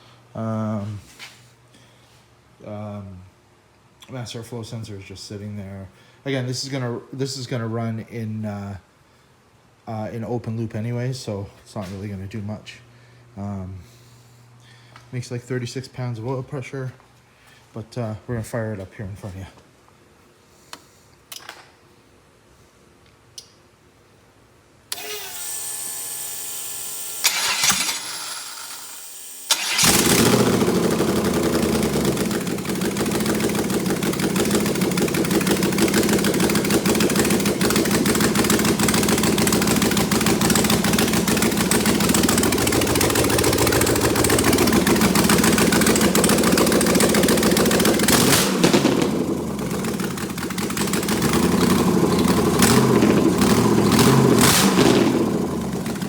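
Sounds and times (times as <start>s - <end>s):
engine starter cranking: 27.2s - 56.0s
engine running loudly: 29.5s - 56.0s.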